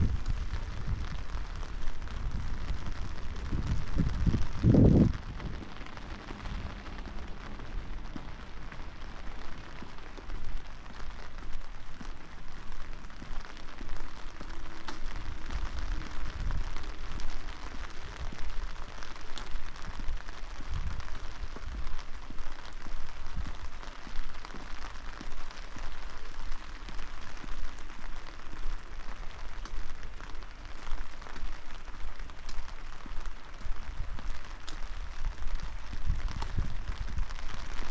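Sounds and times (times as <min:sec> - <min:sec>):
low rumbles: 0:00.0 - 0:22.4
rain pattering: 0:00.0 - 0:37.9.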